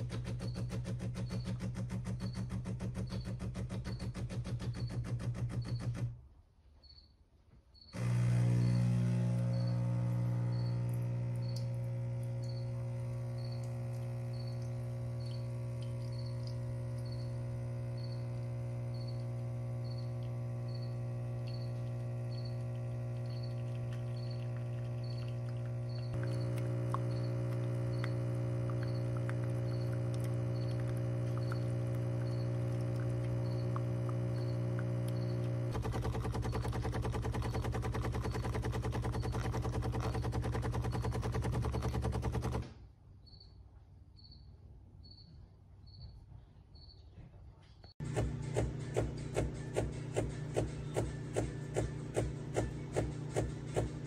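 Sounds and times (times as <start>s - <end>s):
espresso machine humming: 8.0s - 42.6s, 48.0s - 54.0s
rapid buzzing rattle: 27.1s - 42.6s.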